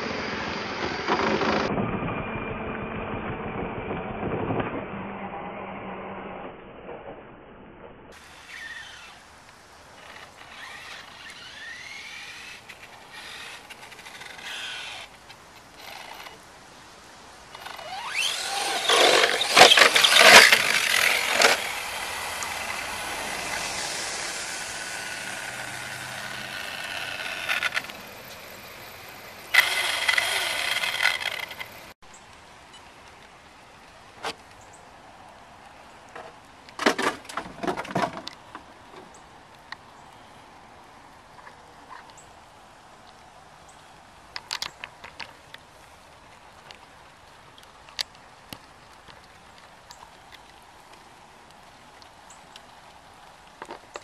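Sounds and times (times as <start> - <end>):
loud rough noise bursts: 0.0 - 6.4, 17.6 - 32.0
electric motor whining: 17.6 - 28.1, 29.4 - 31.9.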